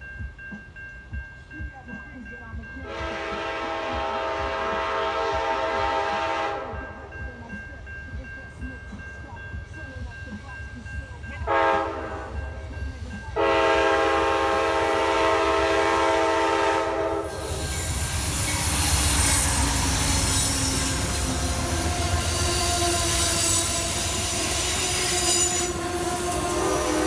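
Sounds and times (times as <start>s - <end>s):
train rumbling past: 0.0s - 27.0s
train horn blast: 2.8s - 7.0s, 11.4s - 12.6s, 13.4s - 27.0s.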